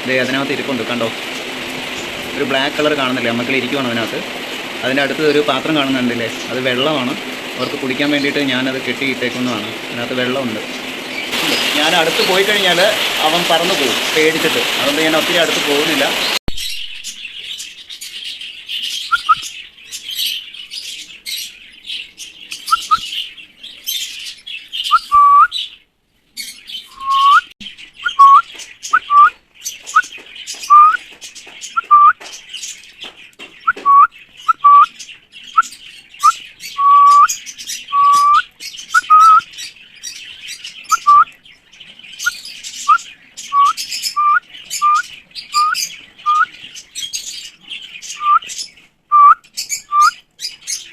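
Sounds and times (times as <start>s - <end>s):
birds chirping: 0.0s - 50.9s
bird whistling rising notes: 19.1s - 19.5s, 22.7s - 23.1s, 24.9s - 25.6s, 26.8s - 30.0s, 30.7s - 31.0s, 31.8s - 32.2s, 33.6s - 35.0s, 35.6s - 39.5s, 40.9s - 41.4s, 42.8s - 46.5s, 48.1s - 48.5s, 49.1s - 50.2s.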